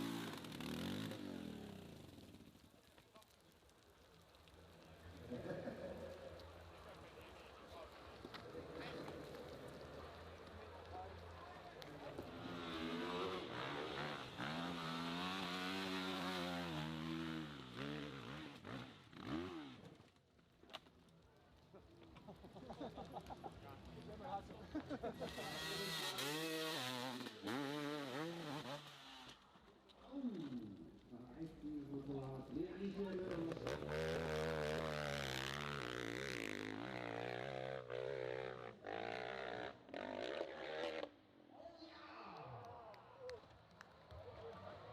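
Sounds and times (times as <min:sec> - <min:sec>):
motorcycle engine revving: 0:00.0 - 0:03.3, 0:05.0 - 0:20.0, 0:24.8 - 0:29.5, 0:32.9 - 0:41.2.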